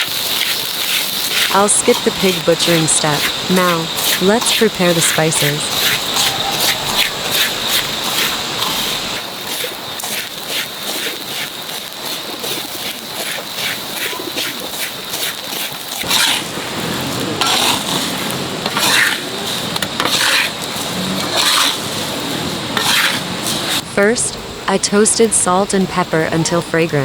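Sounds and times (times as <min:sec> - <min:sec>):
utensils clicking and knocking: 0:00.0 - 0:12.2
scraping of dishes: 0:00.9 - 0:11.5, 0:16.0 - 0:23.8.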